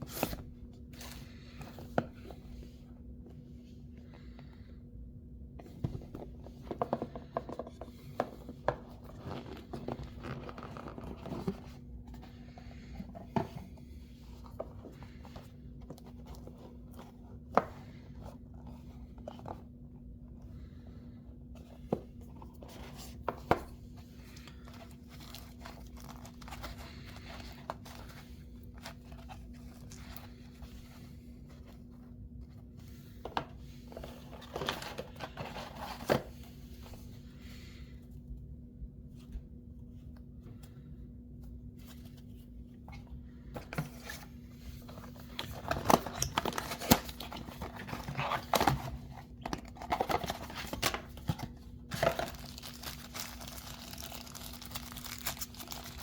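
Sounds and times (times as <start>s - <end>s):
faint steady hum: 0.0s - 56.0s
packaging rustling and scraping: 5.7s - 19.7s, 21.6s - 32.0s, 32.6s - 37.2s, 43.1s - 56.0s.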